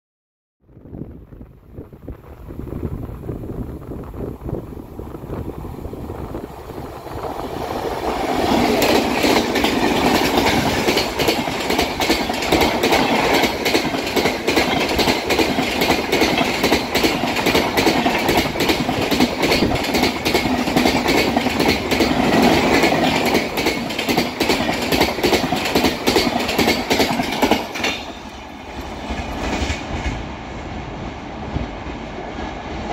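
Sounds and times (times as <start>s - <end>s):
train wheels clickety-clack: 7.0s - 30.7s.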